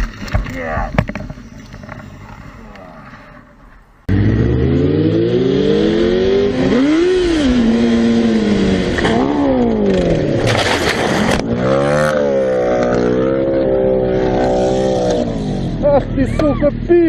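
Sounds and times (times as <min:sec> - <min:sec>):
motorcycle engine revving: 0:04.1 - 0:17.0.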